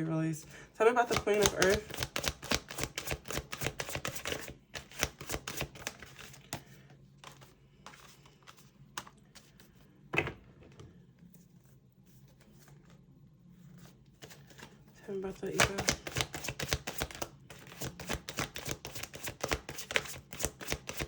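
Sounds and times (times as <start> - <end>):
cards being shuffled: 1.0 - 9.8, 13.8 - 21.0.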